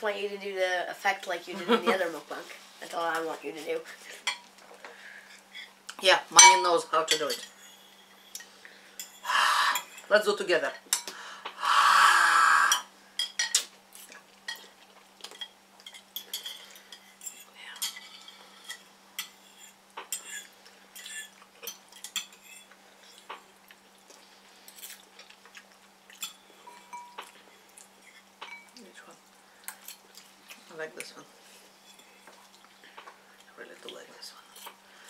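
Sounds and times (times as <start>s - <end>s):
utensils clinking against bowls: 6.4s - 10.1s, 15.3s - 22.7s, 26.1s - 27.3s, 28.4s - 28.8s.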